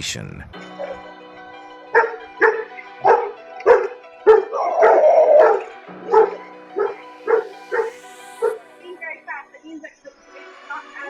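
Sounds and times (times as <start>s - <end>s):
background music: 0.0s - 11.0s
dog barking: 1.9s - 8.6s.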